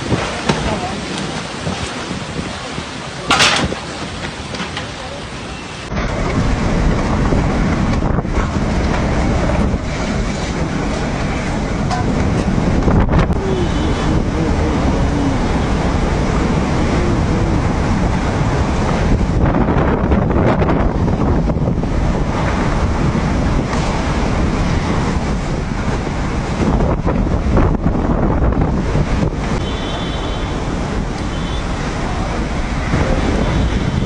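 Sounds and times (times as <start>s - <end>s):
storm wind buffeting microphone: 0.0s - 34.0s.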